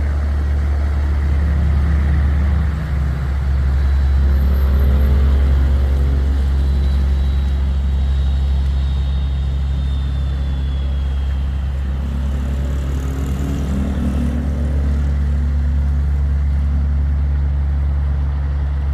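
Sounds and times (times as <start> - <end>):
boat engine drone: 0.0 - 18.9
faint high whine: 3.3 - 17.1.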